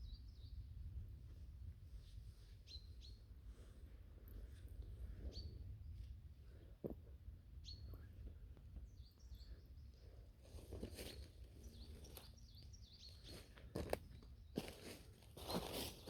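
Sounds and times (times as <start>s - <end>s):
small birds chirping: 5.2s - 6.1s, 7.6s - 16.0s.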